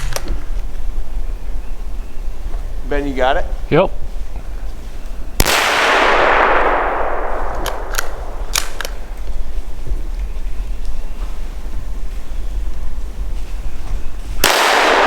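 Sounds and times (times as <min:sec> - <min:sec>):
gunshot echoing: 0:05.4 - 0:09.3, 0:14.4 - 0:15.0.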